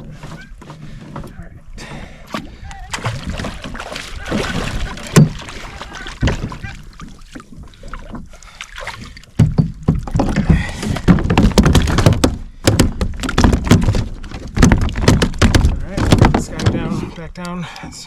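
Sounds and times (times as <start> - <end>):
knocks and thumps on a kayak: 0.0 - 17.1
water splashing: 1.2 - 9.9.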